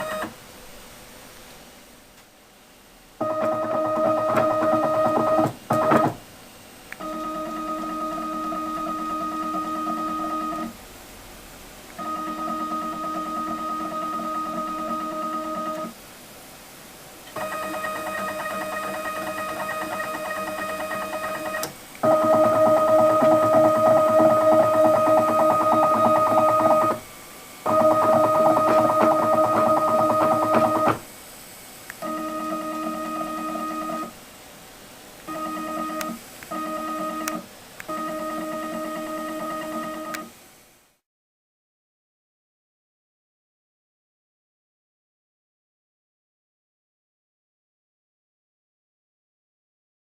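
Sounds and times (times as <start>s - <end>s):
machine motors whining: 0.0s - 0.4s, 7.0s - 10.8s, 12.0s - 15.9s, 17.3s - 31.1s, 31.9s - 34.1s, 35.3s - 40.3s
stepper motors whining: 17.4s - 31.0s
clicks: 37.2s - 38.0s.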